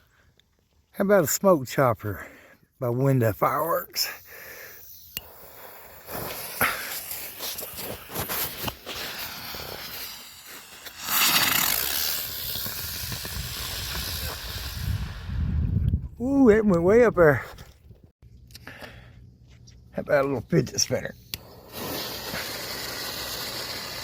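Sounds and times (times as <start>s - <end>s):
firework crackling and hissing: 4.0s - 15.8s, 21.4s - 24.0s.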